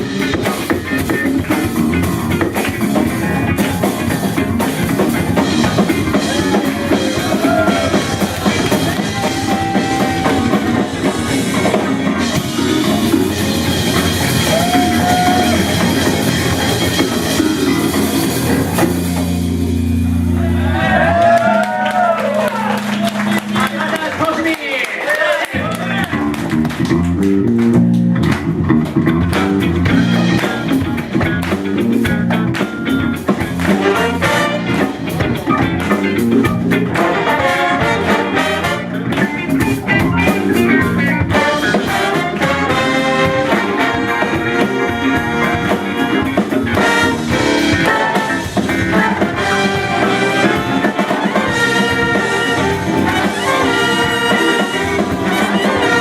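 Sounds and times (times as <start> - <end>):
repeating bass line: 0.0 - 24.2, 25.6 - 56.0
brass section playing: 33.6 - 56.0.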